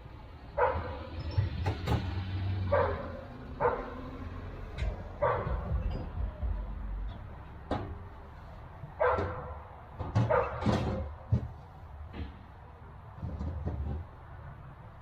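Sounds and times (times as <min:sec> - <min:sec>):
dog barking: 0:00.6 - 0:01.0, 0:02.7 - 0:04.1, 0:05.2 - 0:05.7, 0:09.0 - 0:09.6, 0:10.2 - 0:10.6.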